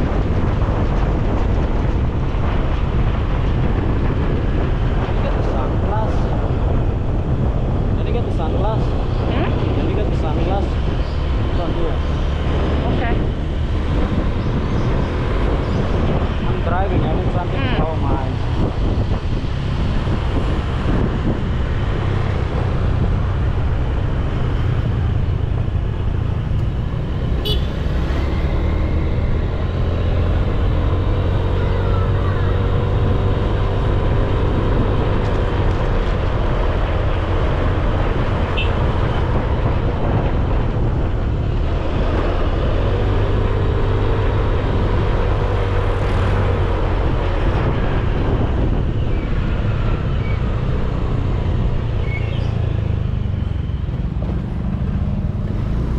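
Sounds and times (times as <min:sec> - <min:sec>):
motorcycle engine running: 0:24.5 - 0:27.9.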